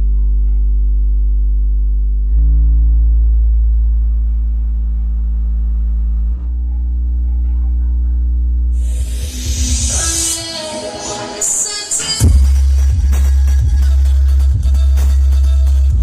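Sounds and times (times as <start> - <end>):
electronic dance music: 8.8 - 16.0.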